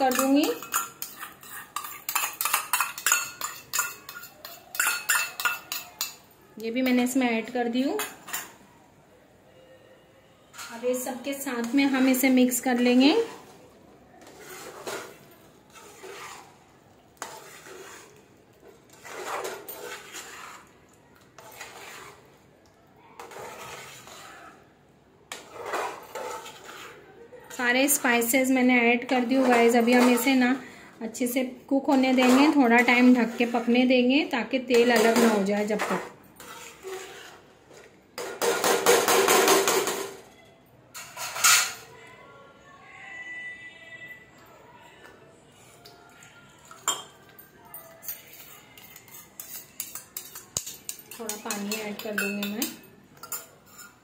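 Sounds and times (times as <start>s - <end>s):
spoon clinking against pan: 0.0s - 7.2s, 46.7s - 54.0s
spoon stirring and scraping food: 0.0s - 8.7s, 10.4s - 41.9s, 44.4s - 54.0s.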